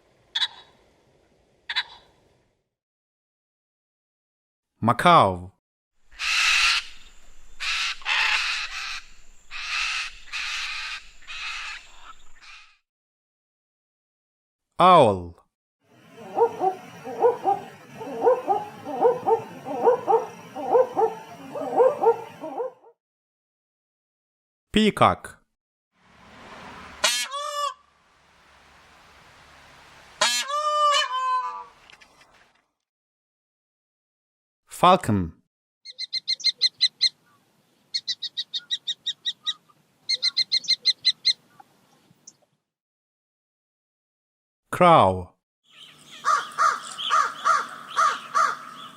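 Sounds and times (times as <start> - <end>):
owl calling: 0.3 - 0.8, 1.7 - 2.1, 6.1 - 12.8, 16.0 - 22.9, 26.6 - 32.3, 35.9 - 41.6, 45.7 - 48.9.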